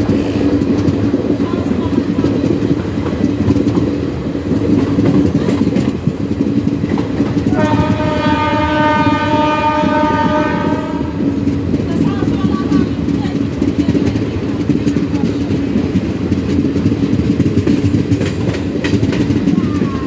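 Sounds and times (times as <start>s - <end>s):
train wheels rumbling on rails: 0.0s - 20.0s
train horn blast: 7.5s - 11.4s.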